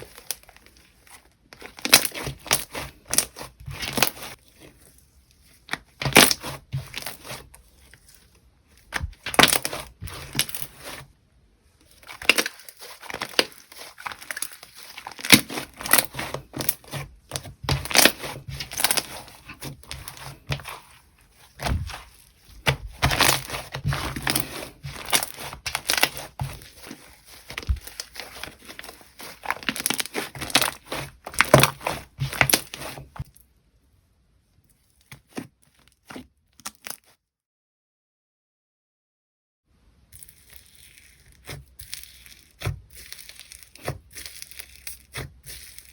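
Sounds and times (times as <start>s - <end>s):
slime crackling and squelching: 0.0s - 33.3s, 34.8s - 37.1s, 40.1s - 45.9s.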